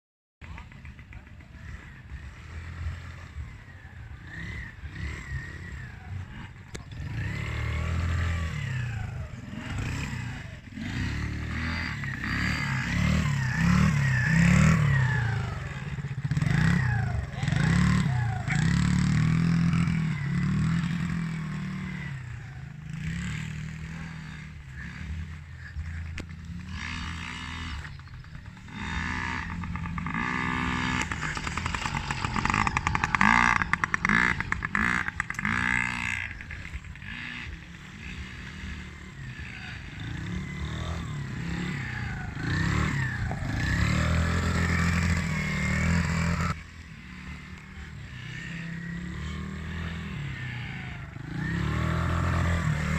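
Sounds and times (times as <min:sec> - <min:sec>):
motocross engines revving: 0:00.4 - 0:52.9.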